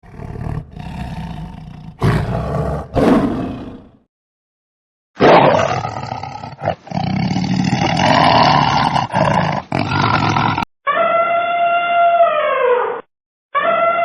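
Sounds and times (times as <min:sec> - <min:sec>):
big cat roaring: 0:00.0 - 0:04.0, 0:05.2 - 0:10.7
wolf howling: 0:10.9 - 0:13.0.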